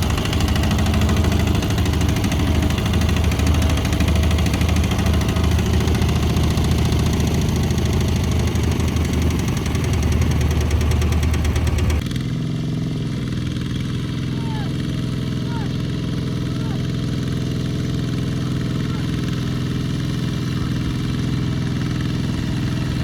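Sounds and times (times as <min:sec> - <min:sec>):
deep engine rumble: 0:00.0 - 0:12.0
heavy machinery engine clattering: 0:00.0 - 0:12.2, 0:13.2 - 0:23.0.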